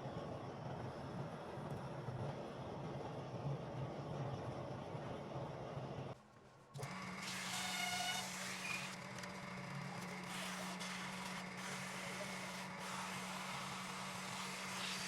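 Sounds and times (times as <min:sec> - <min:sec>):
wood lathe motor hum: 0:10.0 - 0:15.0
tool hissing on spinning wood: 0:10.4 - 0:15.0.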